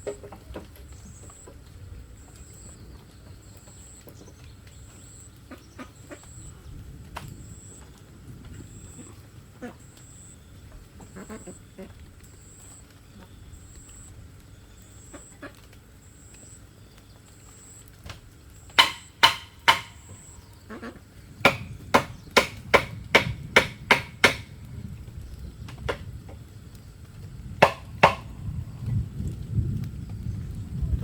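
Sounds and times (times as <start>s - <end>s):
tool striking bamboo: 18.8s - 20.3s, 21.4s - 24.5s, 27.6s - 28.3s.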